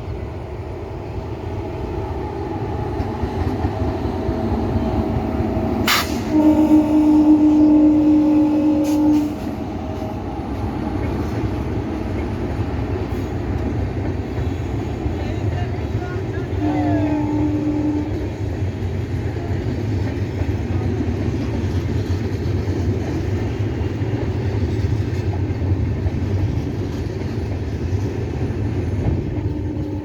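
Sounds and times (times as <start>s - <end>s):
train rumbling: 0.0s - 30.0s
train horn: 5.8s - 10.2s, 16.3s - 18.5s, 29.1s - 30.0s.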